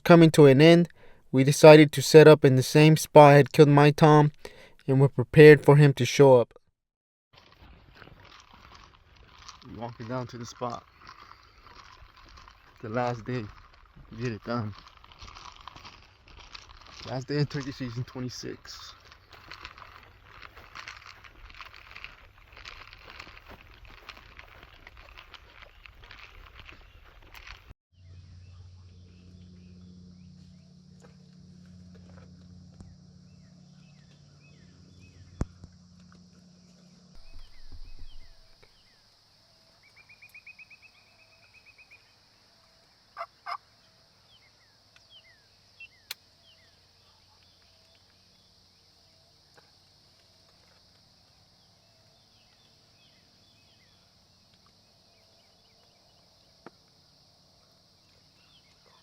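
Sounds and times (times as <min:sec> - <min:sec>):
low steady hum: 0:28.0 - 0:43.0
small bird chirps: 0:36.7 - 0:39.0, 0:39.6 - 0:42.2
wild turkey gobble: 0:43.2 - 0:43.7.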